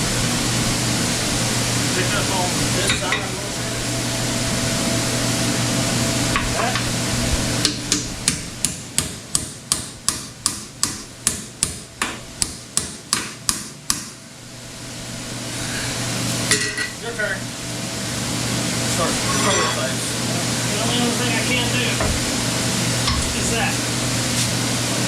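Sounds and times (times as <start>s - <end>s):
hammer striking: 7.6s - 14.2s.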